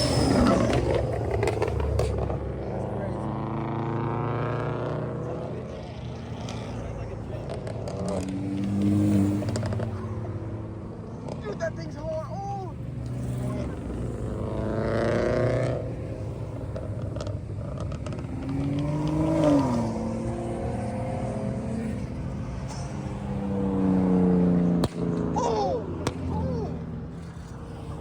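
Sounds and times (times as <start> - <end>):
car engines revving in traffic: 0.0 - 28.0.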